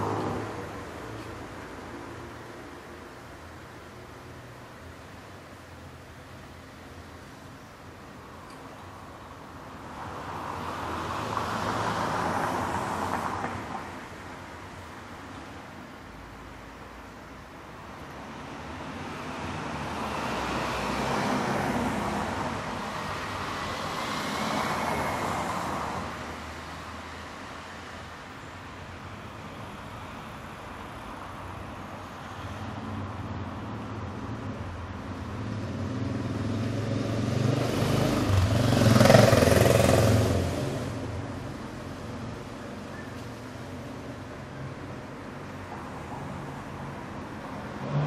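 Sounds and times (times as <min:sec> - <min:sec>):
cars passing: 0:00.0 - 0:48.0
steady traffic hum: 0:00.0 - 0:48.0
vehicle with deep engine rumble: 0:28.3 - 0:48.0.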